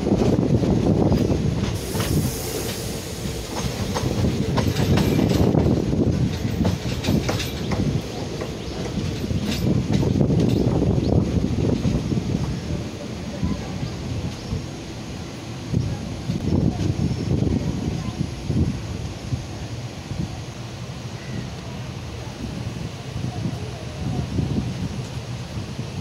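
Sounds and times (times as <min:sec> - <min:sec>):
wind rushing: 0:00.0 - 0:13.0
train wheels rumbling on rail: 0:00.0 - 0:26.0
wheels clicking over track: 0:00.2 - 0:12.0.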